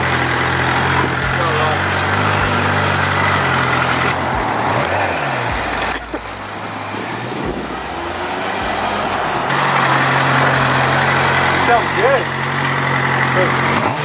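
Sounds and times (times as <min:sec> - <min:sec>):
engine idling: 0:00.0 - 0:14.0
plain noise: 0:00.0 - 0:14.0.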